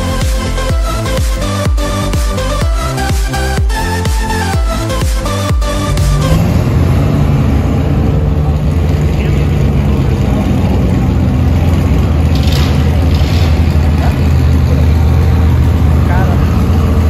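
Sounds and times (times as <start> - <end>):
car engines rumbling past: 5.6 - 17.0.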